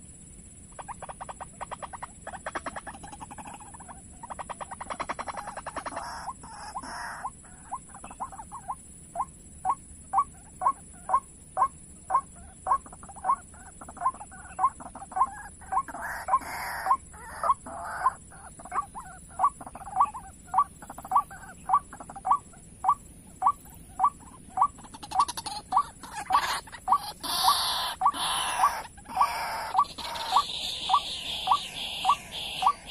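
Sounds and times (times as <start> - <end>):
bird calling short kwak notes: 22.3 - 32.9.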